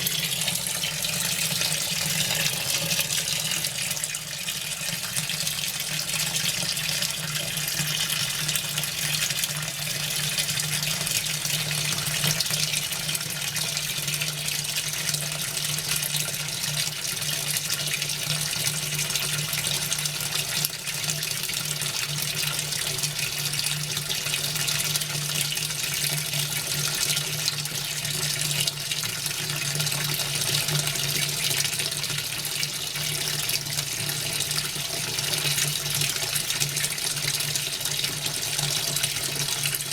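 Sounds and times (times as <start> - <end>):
water running into washing machine: 0.0 - 39.9.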